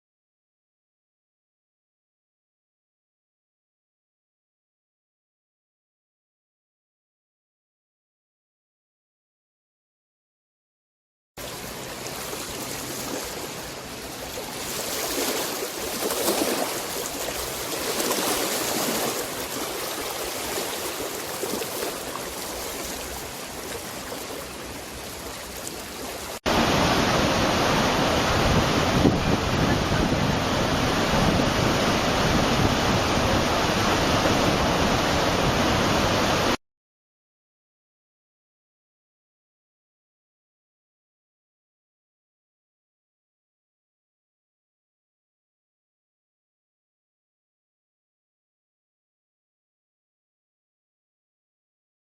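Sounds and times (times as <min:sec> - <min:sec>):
rushing water: 0:11.4 - 0:36.6.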